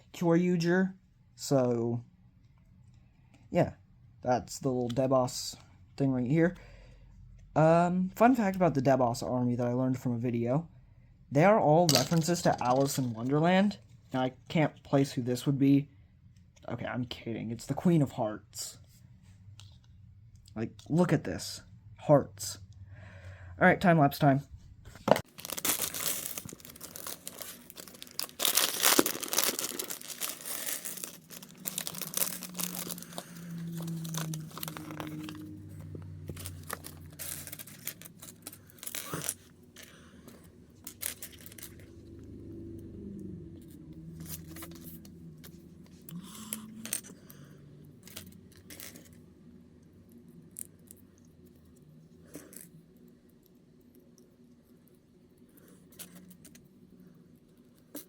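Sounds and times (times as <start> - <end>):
packaging tearing and crinkling: 25.2 - 35.6, 36.3 - 39.4.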